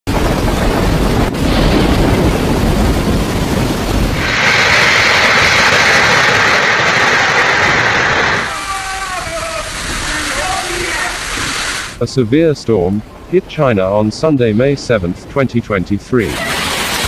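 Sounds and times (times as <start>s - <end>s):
wind buffeting microphone: 0.1s - 8.5s
heavy rain hissing: 0.1s - 12.3s, 16.1s - 17.0s.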